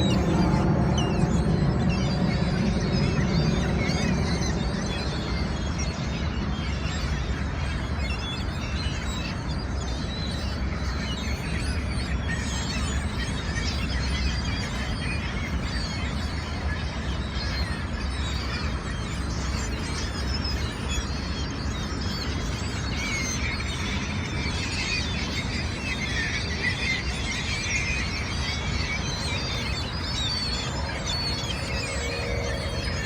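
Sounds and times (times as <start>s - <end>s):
steady low rumble: 0.0s - 6.4s, 28.2s - 33.0s
gulls calling: 0.0s - 33.0s.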